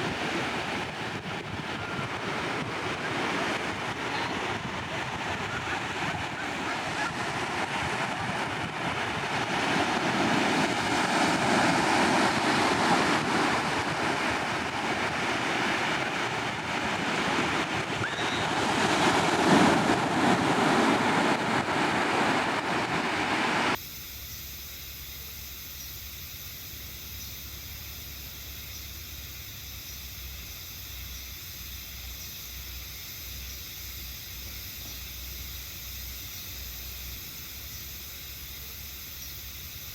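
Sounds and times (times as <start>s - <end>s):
ocean surf breaking: 0.0s - 23.8s
steady high hiss: 0.0s - 39.9s.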